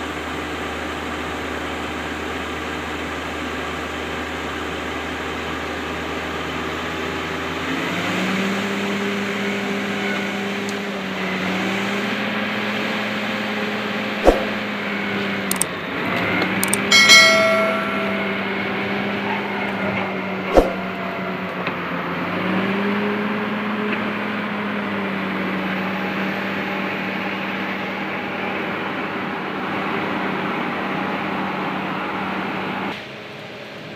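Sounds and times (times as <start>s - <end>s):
sharp knocks: 14.2s - 14.6s
metallic clang: 16.6s - 22.4s.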